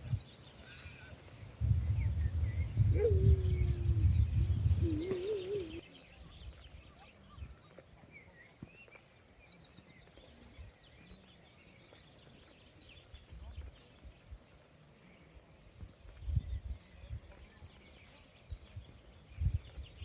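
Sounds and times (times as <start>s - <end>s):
faint bird chirps: 0.0s - 14.1s.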